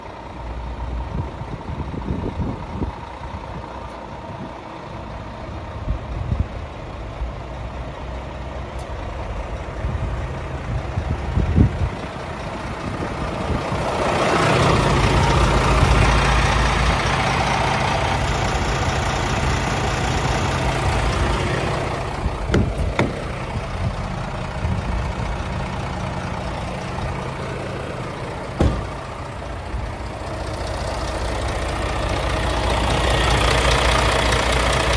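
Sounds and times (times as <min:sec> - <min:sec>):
diesel truck engine idling: 0:00.0 - 0:34.9
short knocks: 0:22.5 - 0:23.7, 0:28.6 - 0:29.3.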